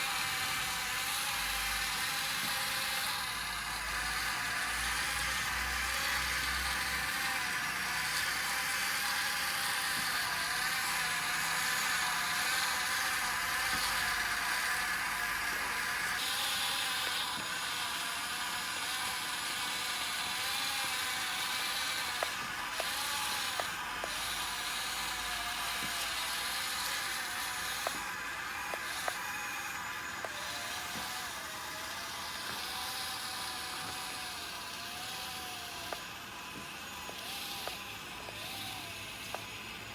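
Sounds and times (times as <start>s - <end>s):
small electric motors whining: 0.0s - 39.9s
sharp clicks: 27.6s - 29.3s.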